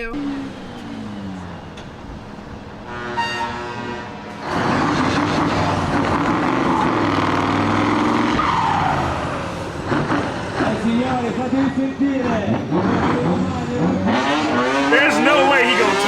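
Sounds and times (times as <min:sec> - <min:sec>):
tyres skidding on tarmac: 0:00.0 - 0:16.0
engine at high revs: 0:03.9 - 0:16.0.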